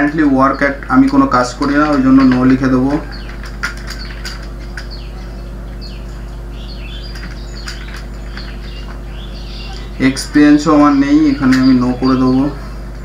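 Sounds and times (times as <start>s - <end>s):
keys typing clicks: 0.0s - 5.3s, 7.0s - 9.9s
small birds chirping: 0.0s - 13.0s
steady electrical hum: 0.0s - 13.0s.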